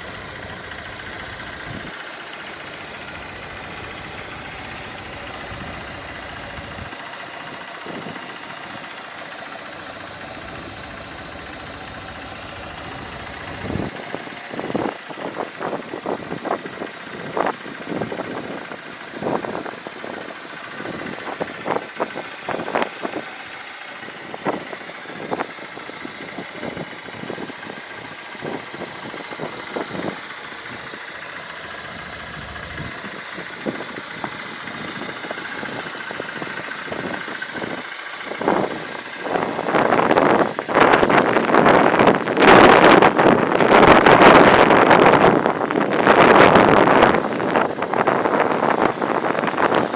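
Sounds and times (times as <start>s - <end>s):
motorcycle engine idling: 0.0s - 49.9s.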